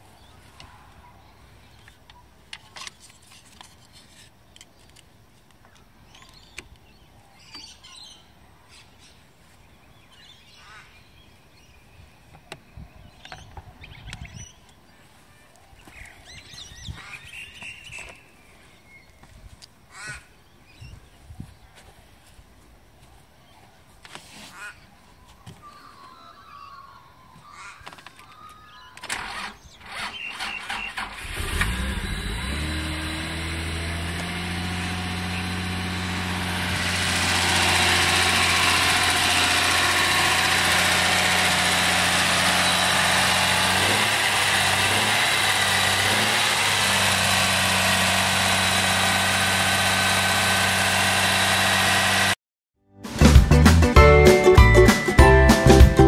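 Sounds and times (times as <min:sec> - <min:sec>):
car engine cranking: 0:29.0 - 0:52.4
car engine idling: 0:31.3 - 0:52.4.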